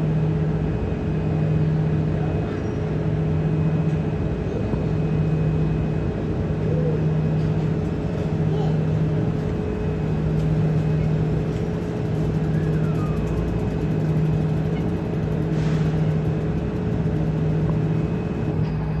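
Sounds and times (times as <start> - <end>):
train machine hum and rumble: 0.0 - 19.0
faint falling squeal: 12.4 - 13.4.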